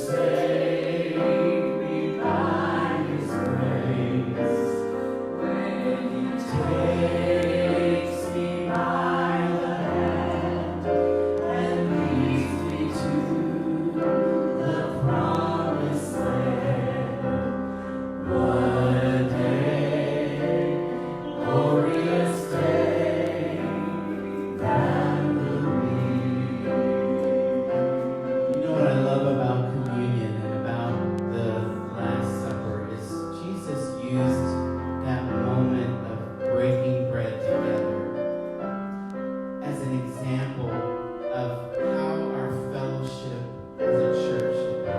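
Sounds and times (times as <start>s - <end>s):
choir singing slow song: 0.0s - 31.4s
instrumental accompaniment: 0.0s - 44.9s.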